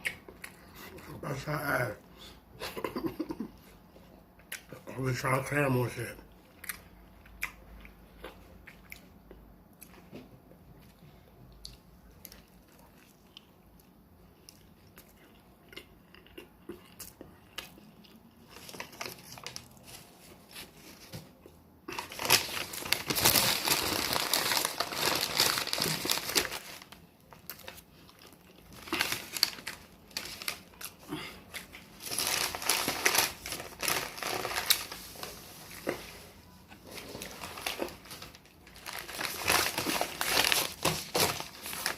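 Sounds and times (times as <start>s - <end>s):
wrapping crumpled and crinkled: 17.6s - 41.9s.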